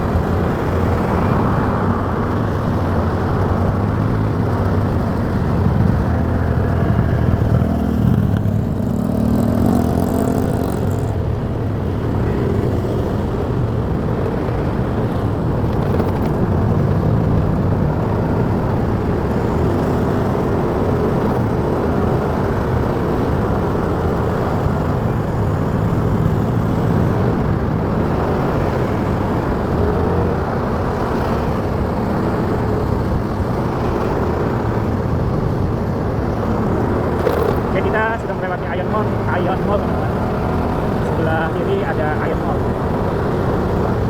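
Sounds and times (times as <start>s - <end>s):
motorcycle engine running: 0.0s - 44.0s
road and wind noise: 0.0s - 44.0s.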